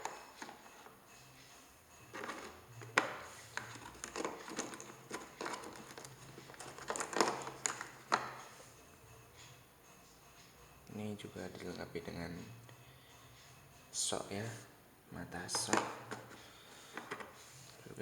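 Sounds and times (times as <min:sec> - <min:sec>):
drill accessories clicking and tapping: 0:00.0 - 0:00.9, 0:02.1 - 0:08.5, 0:15.5 - 0:17.4
packaging rustling: 0:02.1 - 0:08.5, 0:15.5 - 0:17.4.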